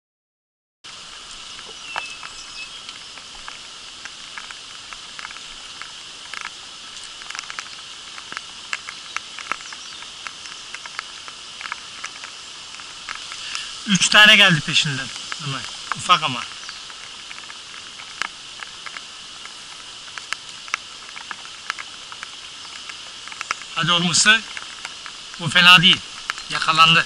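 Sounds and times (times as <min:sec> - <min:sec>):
steady rain hiss: 0:00.8 - 0:27.0
raindrops ticking close by: 0:00.9 - 0:27.0.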